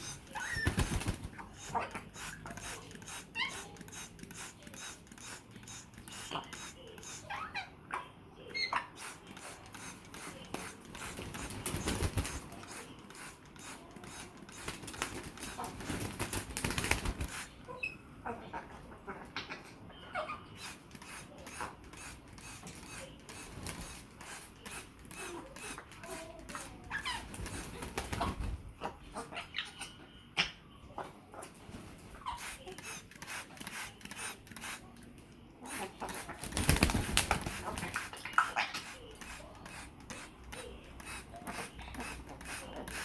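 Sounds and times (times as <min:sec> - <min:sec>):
wet wings flapping: 0:00.5 - 0:01.4, 0:11.1 - 0:12.5, 0:14.6 - 0:17.5, 0:36.4 - 0:38.0
parrots splashing water: 0:09.0 - 0:17.6, 0:32.3 - 0:43.0.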